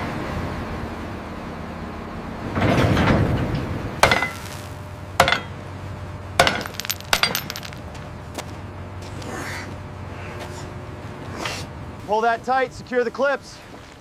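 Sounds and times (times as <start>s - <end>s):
sharp ringing clinks: 6.4s - 7.8s.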